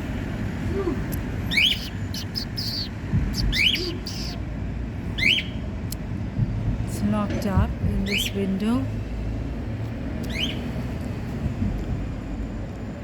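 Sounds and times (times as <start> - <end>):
low background rumble: 0.0 - 13.0
caged bird chirping: 1.1 - 6.0, 7.9 - 8.4, 10.2 - 11.0.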